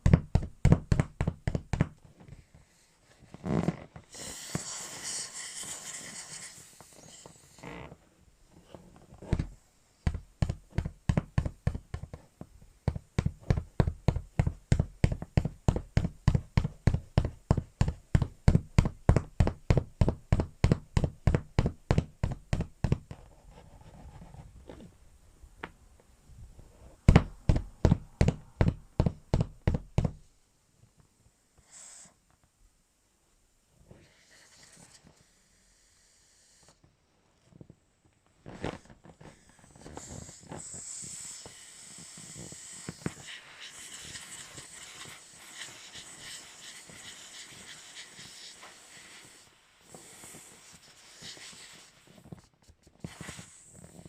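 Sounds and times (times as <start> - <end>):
hissing air: 4.1 - 7.6.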